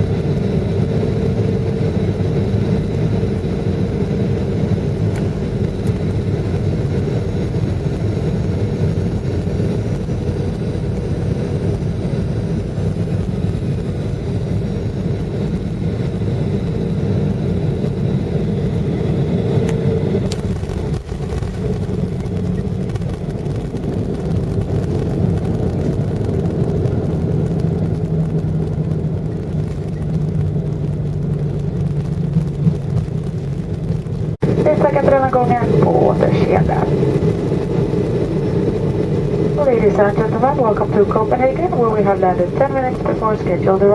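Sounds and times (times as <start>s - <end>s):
jet engine rumble in airliner cabin: 0.0s - 43.9s
low hum: 0.0s - 43.9s.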